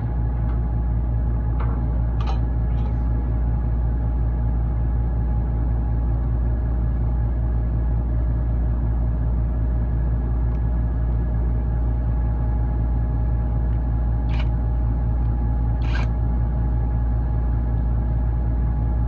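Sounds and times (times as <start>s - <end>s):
ship machinery drone: 0.0s - 19.0s
sharp metal knocks: 1.6s - 2.5s.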